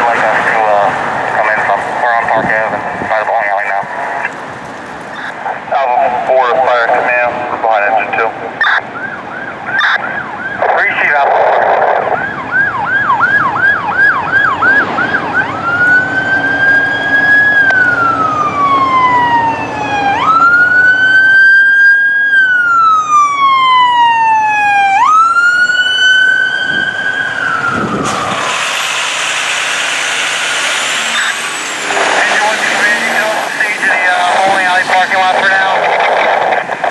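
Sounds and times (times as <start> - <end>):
siren wail: 0.0 - 36.9
siren yelp: 5.1 - 29.1, 30.9 - 36.9
broad rushing noise: 13.4 - 18.2, 24.8 - 36.9.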